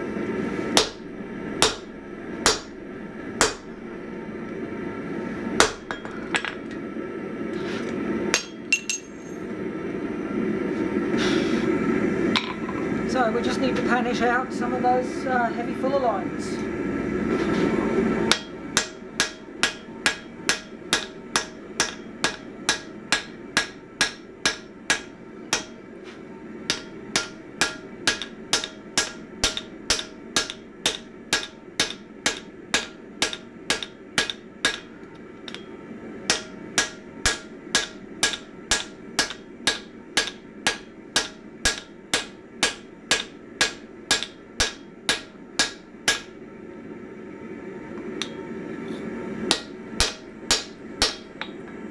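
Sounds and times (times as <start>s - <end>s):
low hum: 0.0s - 7.5s
hammer ringing on anvil: 0.8s - 2.8s, 3.4s - 3.8s, 5.6s - 6.5s, 8.4s - 9.4s, 18.3s - 25.9s, 26.7s - 46.4s, 48.2s - 48.5s, 49.5s - 51.6s.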